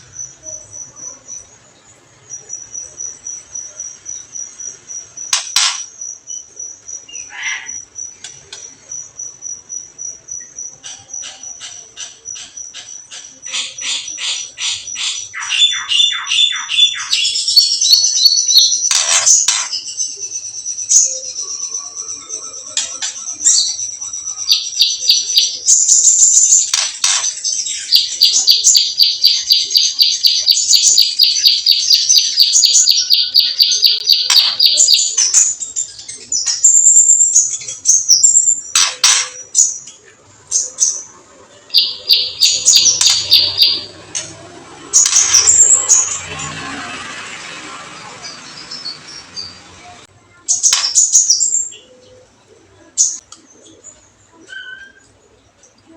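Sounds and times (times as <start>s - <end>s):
harsh rattling bird calls: 0.0s - 52.2s
songbird chirps: 0.0s - 55.9s
harsh bird squawks: 7.1s - 7.9s, 10.8s - 19.9s, 41.6s - 44.1s
fast high bird trill: 41.7s - 44.2s.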